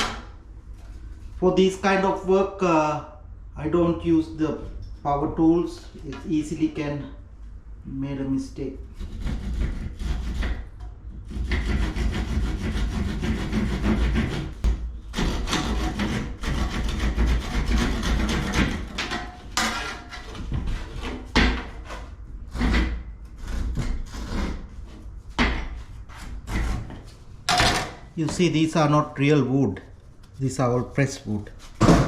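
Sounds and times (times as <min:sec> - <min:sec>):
hand saw cutting fibreboard: 0:09.0 - 0:24.7.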